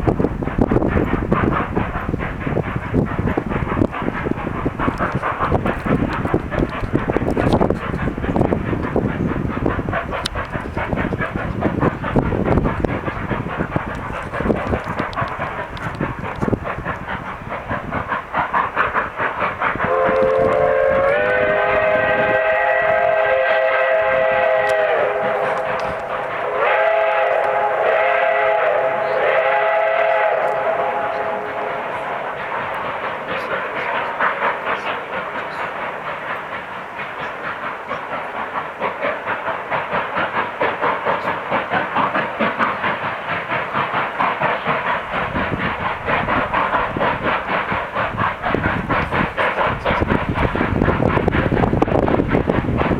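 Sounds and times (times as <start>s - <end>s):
steam locomotive chuffing: 0.0s - 52.9s
chime steam whistle blasts: 19.9s - 32.9s.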